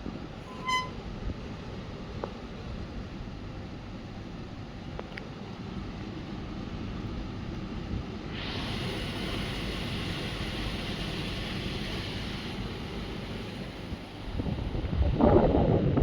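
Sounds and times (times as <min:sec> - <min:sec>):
hiss: 0:08.2 - 0:15.0.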